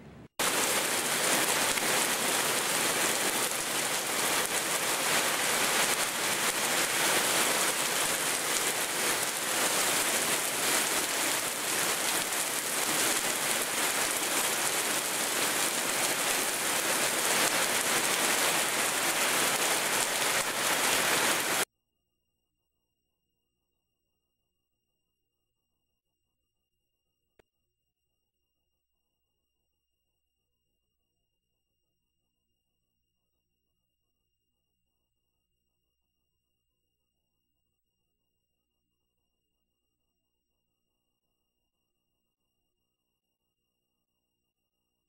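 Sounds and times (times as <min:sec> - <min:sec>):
heavy rain on trees and car roof: 0:00.4 - 0:21.6.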